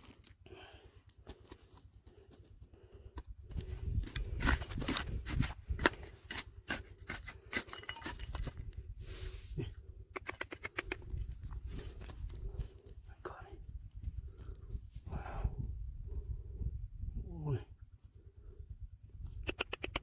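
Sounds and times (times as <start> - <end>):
gravel scraping and clicking: 0.0 - 8.9, 10.1 - 15.3.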